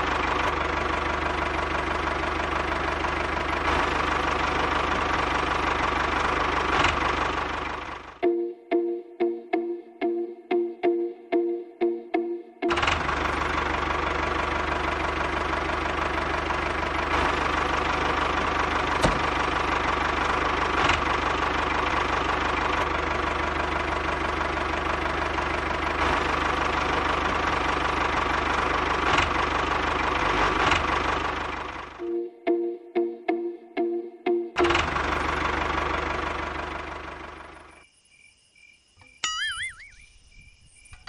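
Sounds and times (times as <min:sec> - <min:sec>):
tractor engine knocking: 0:00.0 - 0:08.2, 0:12.7 - 0:32.0, 0:34.6 - 0:37.7.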